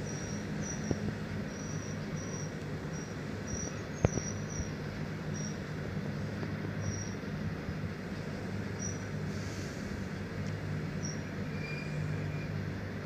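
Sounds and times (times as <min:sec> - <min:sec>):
goods train rumbling: 0:00.0 - 0:13.0.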